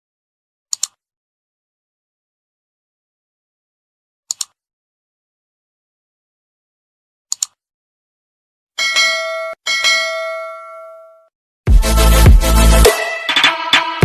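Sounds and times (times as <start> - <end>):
quick double clicks: 0.7 - 1.0
bell chime: 8.8 - 11.3.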